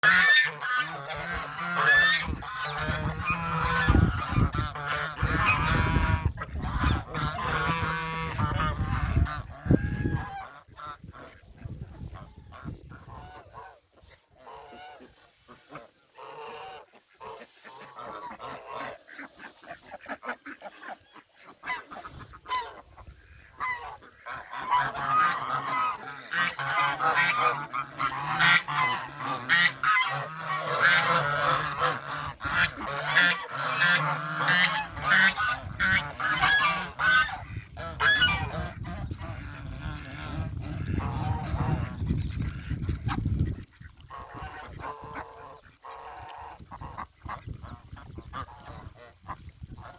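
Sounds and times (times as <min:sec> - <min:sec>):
geese honking: 0:00.0 - 0:10.9, 0:21.5 - 0:42.1.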